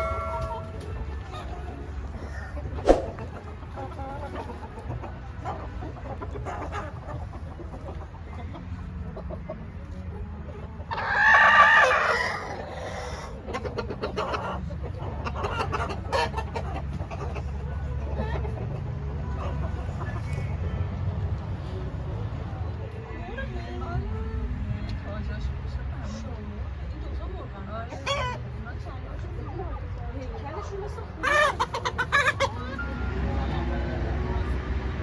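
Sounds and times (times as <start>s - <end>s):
chickens clucking: 0.0s - 20.8s, 27.2s - 29.6s, 30.6s - 35.0s.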